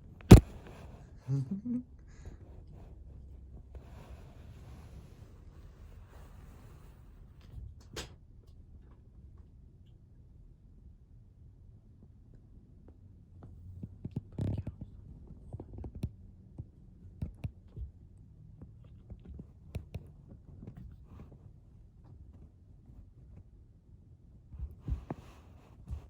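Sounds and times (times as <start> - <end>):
kittens tussling thumps and scratches: 24.5 - 26.0.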